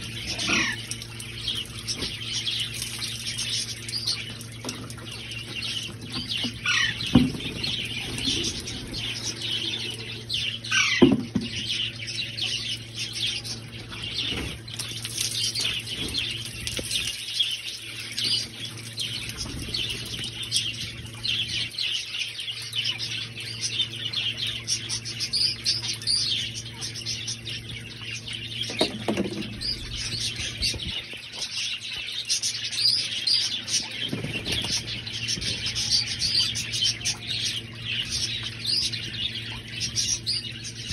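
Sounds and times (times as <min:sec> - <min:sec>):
parrots chirping: 0:00.2 - 0:00.8, 0:09.3 - 0:11.1.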